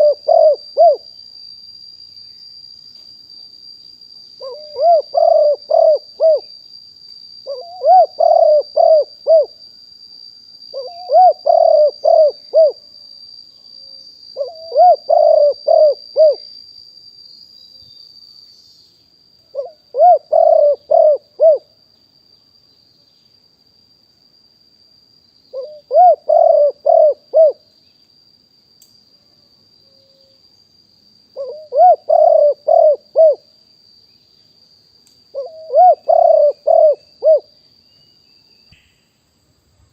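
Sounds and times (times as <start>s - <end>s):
dove cooing: 0.0s - 1.0s, 4.4s - 6.5s, 7.5s - 9.5s, 10.8s - 12.8s, 14.4s - 16.4s, 19.5s - 21.7s, 25.6s - 27.6s, 31.4s - 33.4s, 35.4s - 37.5s.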